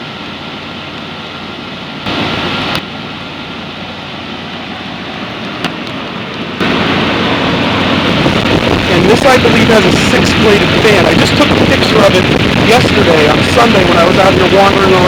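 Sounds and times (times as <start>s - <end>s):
condenser fan whirring: 0.0s - 15.0s
rush of air: 2.1s - 2.8s, 5.2s - 15.0s.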